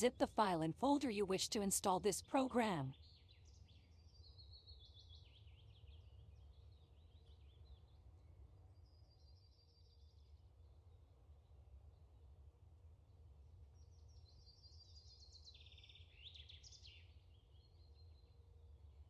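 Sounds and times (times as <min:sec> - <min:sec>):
low steady hum: 0:00.0 - 0:02.9.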